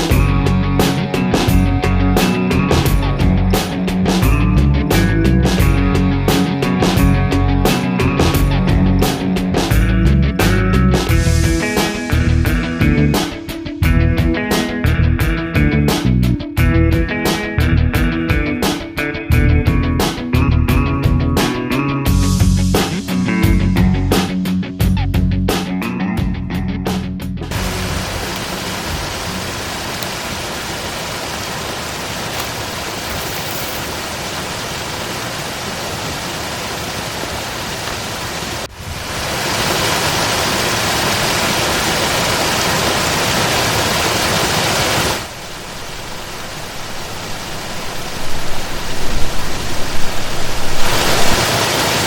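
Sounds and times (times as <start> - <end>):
waterfall rushing: 27.5 - 52.0.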